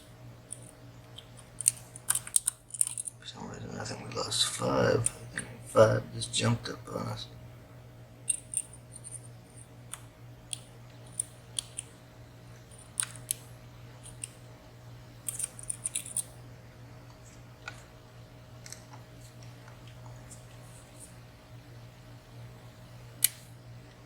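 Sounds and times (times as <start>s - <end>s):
lock picks clicking in padlock: 1.6s - 3.2s, 8.3s - 8.7s, 15.3s - 16.3s.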